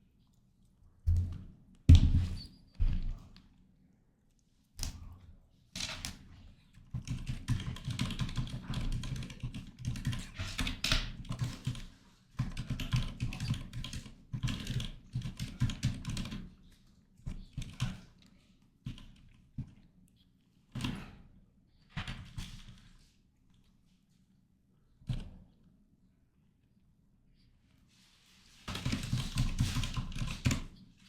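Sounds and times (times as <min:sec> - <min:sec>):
typing on computer keyboard: 0:06.9 - 0:16.5, 0:17.3 - 0:18.1, 0:18.8 - 0:19.4, 0:28.7 - 0:30.8.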